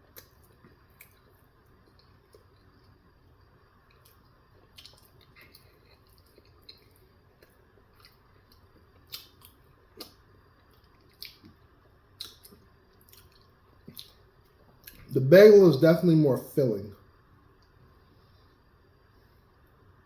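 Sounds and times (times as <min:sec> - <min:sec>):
person chewing food: 0:00.0 - 0:03.1, 0:03.8 - 0:15.1
wet mouth clicks: 0:04.8 - 0:06.8, 0:12.2 - 0:14.2.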